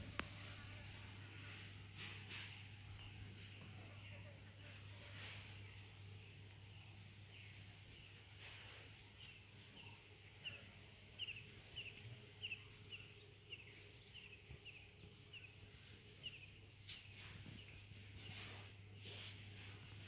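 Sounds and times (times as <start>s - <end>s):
low steady hum: 0.0s - 20.0s
small bird chirping: 2.9s - 19.4s.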